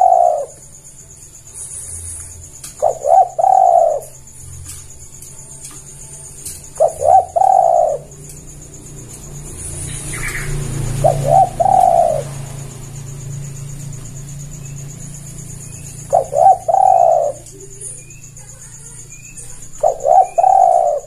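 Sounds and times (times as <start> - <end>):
dove cooing: 0.0 - 0.7, 2.4 - 21.0
faint high chirps: 0.0 - 21.0.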